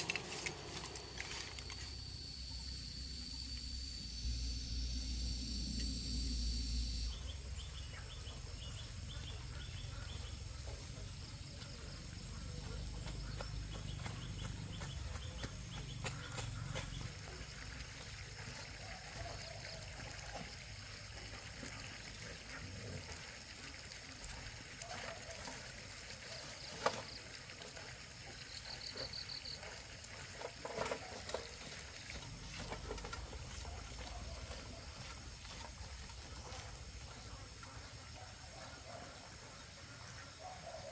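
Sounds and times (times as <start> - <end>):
insect high chirps: 0.0 - 10.0
insect high drone: 0.0 - 12.7.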